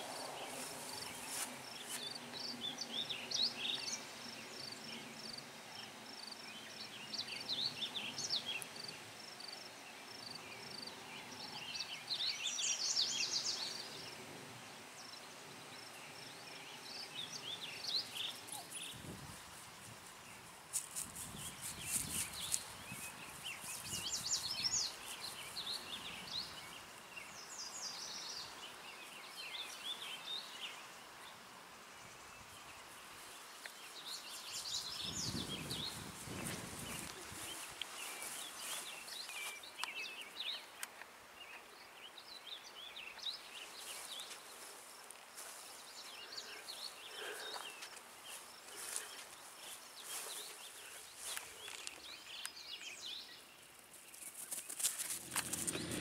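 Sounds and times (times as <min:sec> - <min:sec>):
songbirds chirping and singing: 0:00.0 - 0:19.4, 0:21.3 - 0:56.0
faint outdoor hush: 0:00.0 - 0:56.0
low rumble: 0:55.2 - 0:56.0.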